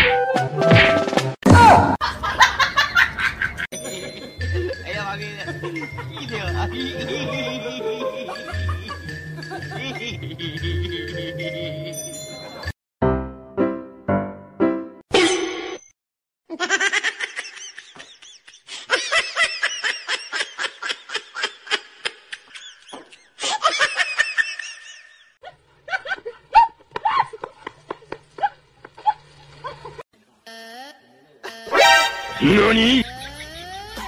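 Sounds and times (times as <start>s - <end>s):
person laughing: 5.4s - 12.0s, 29.0s - 34.0s.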